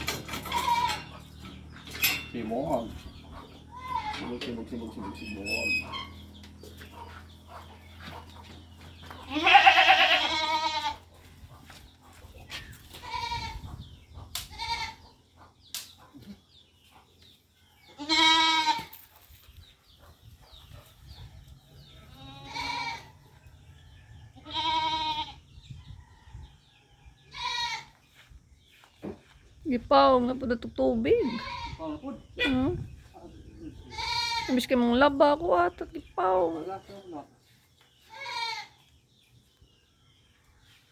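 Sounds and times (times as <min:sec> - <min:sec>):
goat bleating: 0:00.3 - 0:01.3, 0:03.7 - 0:04.4, 0:09.2 - 0:11.0, 0:13.0 - 0:13.6, 0:14.5 - 0:15.0, 0:18.0 - 0:18.9, 0:22.2 - 0:23.1, 0:24.4 - 0:25.4, 0:27.3 - 0:28.0, 0:31.2 - 0:32.0, 0:33.8 - 0:34.6, 0:38.1 - 0:38.8.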